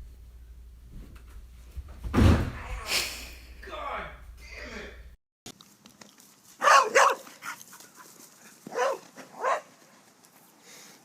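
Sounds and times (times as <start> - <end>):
dog barking: 6.6 - 7.6, 8.7 - 9.7.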